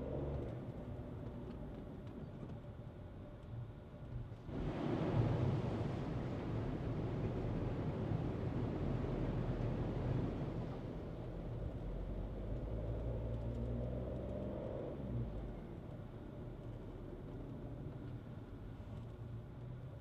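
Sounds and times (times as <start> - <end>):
road noise: 5.8 - 20.0.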